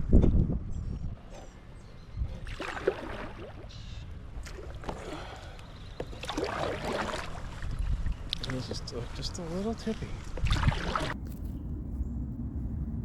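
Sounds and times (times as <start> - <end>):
water splashing and gurgling: 2.3 - 8.8, 10.2 - 11.2
low steady rumble: 11.1 - 13.0.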